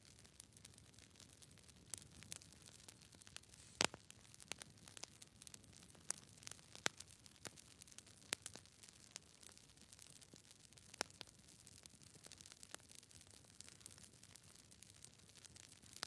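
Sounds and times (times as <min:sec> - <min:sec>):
clicks and crackles: 0:00.2 - 0:16.0
faint hiss: 0:03.4 - 0:04.0.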